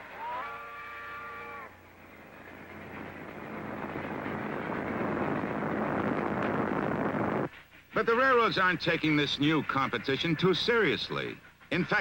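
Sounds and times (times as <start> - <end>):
train whistle: 0.0 - 1.8.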